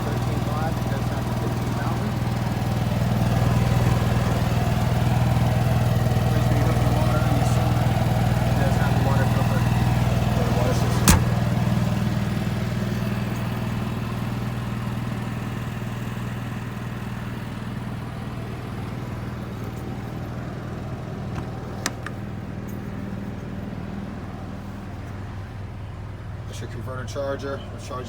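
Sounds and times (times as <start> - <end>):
low engine-like hum: 0.0 - 28.0
sharp click: 11.1 - 11.4.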